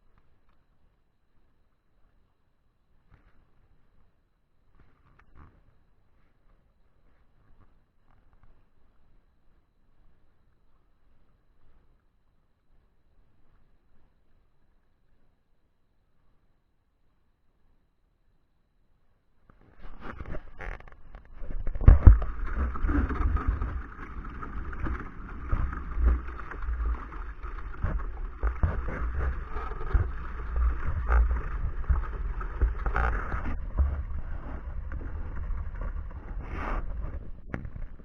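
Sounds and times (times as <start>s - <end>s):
rushing water: 21.4s - 37.8s.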